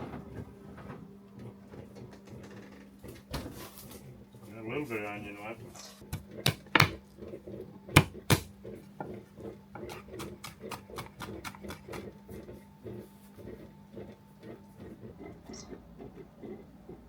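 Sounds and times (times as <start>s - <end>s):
knife chopping onion on board: 6.0s - 7.1s, 7.9s - 12.2s.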